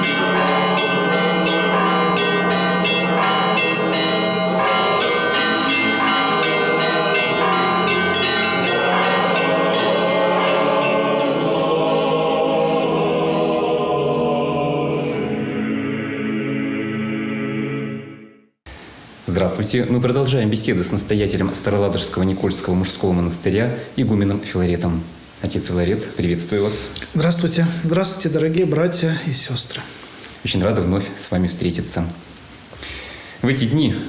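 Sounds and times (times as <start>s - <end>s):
church bells ringing: 0.0s - 13.8s
choral music: 0.0s - 18.6s.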